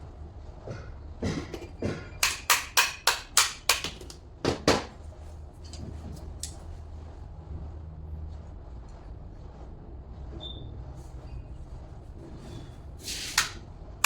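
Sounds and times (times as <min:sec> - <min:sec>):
hammer tapping: 0:00.7 - 0:04.9.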